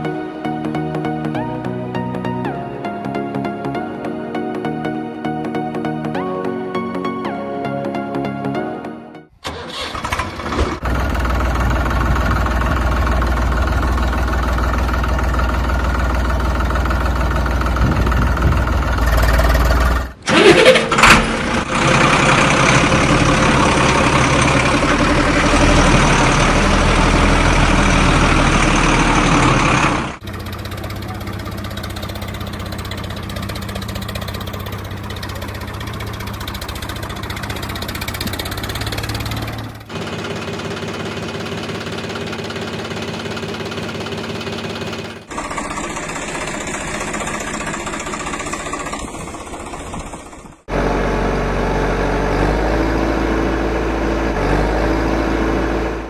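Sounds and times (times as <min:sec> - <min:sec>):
vehicle engine running: 0:09.4 - 0:56.0.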